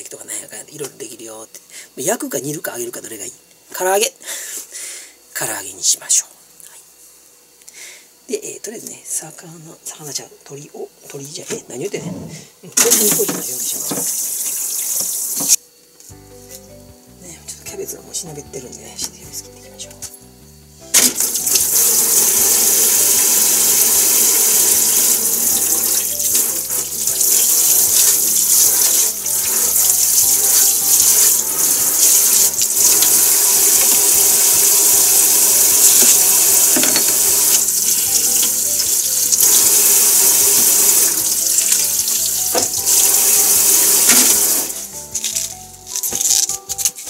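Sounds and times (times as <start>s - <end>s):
tap water running into sink: 12.8s - 15.6s, 21.0s - 44.9s.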